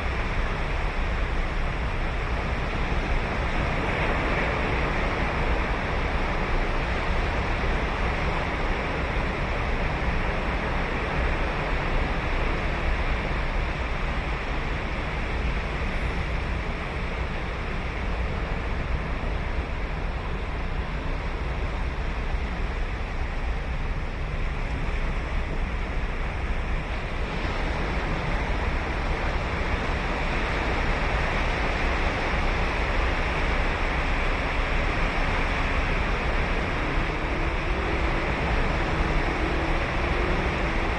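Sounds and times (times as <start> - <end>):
wind rumble on microphone: 0.0 - 40.9
ocean surf breaking on beach: 26.7 - 40.9.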